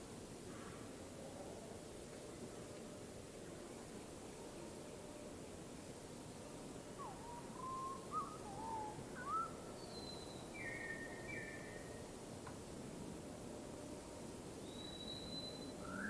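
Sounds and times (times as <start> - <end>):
steady background hiss: 0.0 - 16.0
birds whistling: 14.7 - 16.0.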